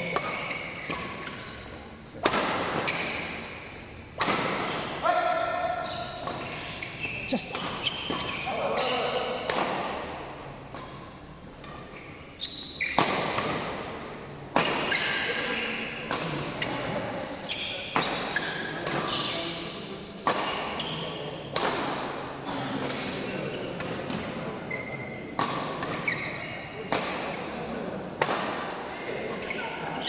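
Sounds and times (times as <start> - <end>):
shoe squeaks: 0.0 - 1.8, 2.8 - 3.8, 5.6 - 9.1, 11.7 - 13.1, 16.6 - 19.6, 24.7 - 25.2, 26.0 - 26.6, 29.4 - 30.0
ball strikes ringing in a hall: 0.0 - 30.0.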